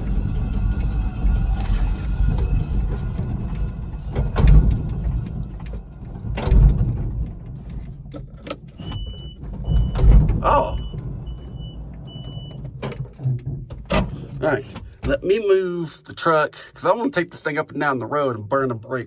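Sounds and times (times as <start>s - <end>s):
electric truck rumbling: 0.0s - 14.9s.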